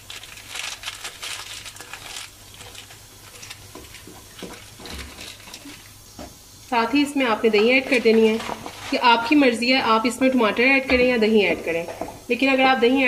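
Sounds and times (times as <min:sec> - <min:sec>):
food sizzling in hot oil: 0:00.0 - 0:13.0
wooden spatula scraping pot: 0:07.6 - 0:09.3.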